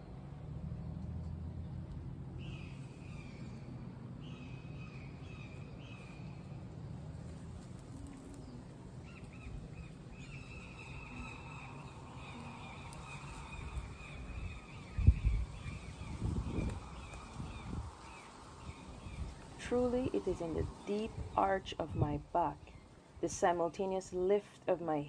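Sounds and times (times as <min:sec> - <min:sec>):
birds chirping: 0:01.5 - 0:25.0
wind rumble on microphone: 0:07.0 - 0:23.3.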